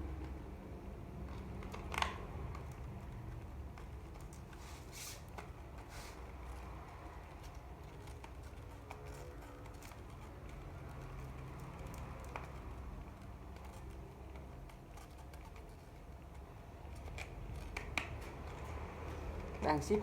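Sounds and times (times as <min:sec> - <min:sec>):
small objects clicking and tapping: 0:06.9 - 0:19.6.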